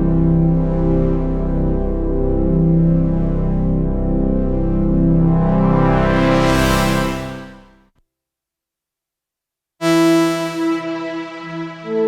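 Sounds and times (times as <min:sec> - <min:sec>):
synthesizer chords: 0:00.0 - 0:07.7, 0:09.8 - 0:12.0.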